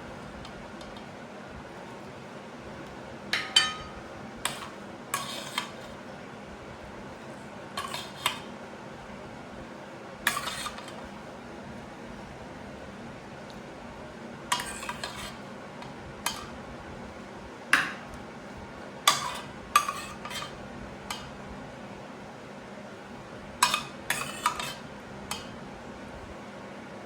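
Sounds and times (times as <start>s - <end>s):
cutlery clinking against dishes: 3.4s - 5.8s, 7.8s - 8.5s, 10.3s - 11.0s, 14.5s - 15.3s, 16.2s - 16.5s, 19.1s - 21.3s, 23.6s - 25.5s.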